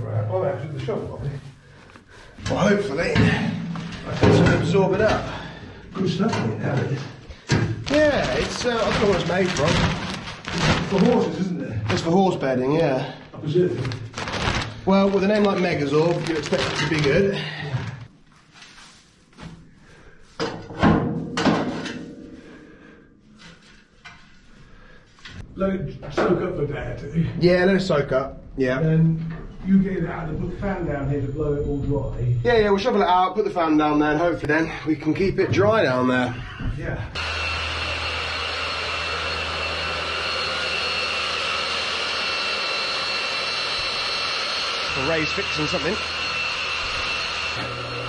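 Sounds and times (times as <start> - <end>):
machinery drone with high whine: 28.8 - 33.0, 37.2 - 48.0.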